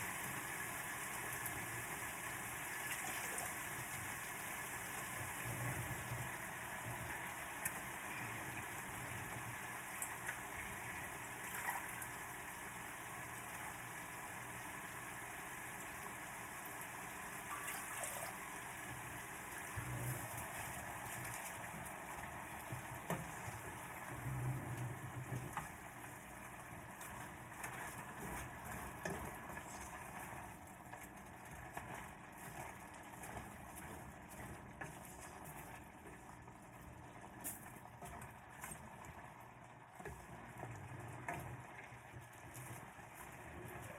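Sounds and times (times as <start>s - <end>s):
food sizzling in a pan: 0.0s - 30.6s.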